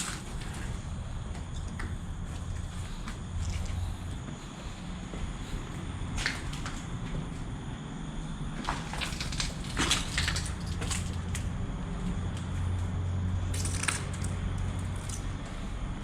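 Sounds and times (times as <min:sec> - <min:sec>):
crunching and crackling: 0:08.6 - 0:15.6.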